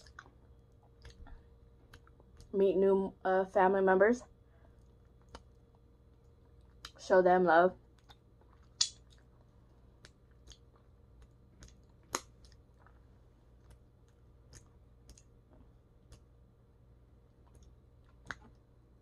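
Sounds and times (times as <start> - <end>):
person chewing with mouth clicks: 0.0 - 2.5, 4.8 - 7.0, 7.9 - 13.0, 13.6 - 15.3, 17.3 - 18.6.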